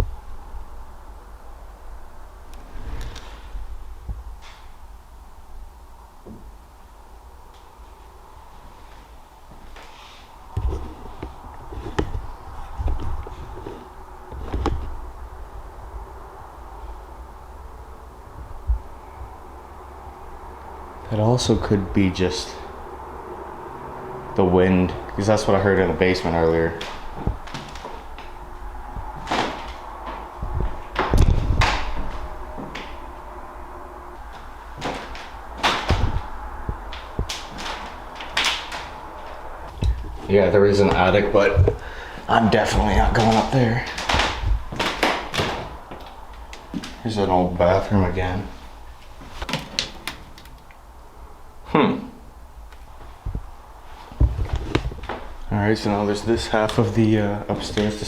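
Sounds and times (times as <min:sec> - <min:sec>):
floor creaking: 0:26.7 - 0:47.1
heavy footsteps on indoor floor: 0:29.0 - 0:33.2
knocks and thumps: 0:34.8 - 0:38.9.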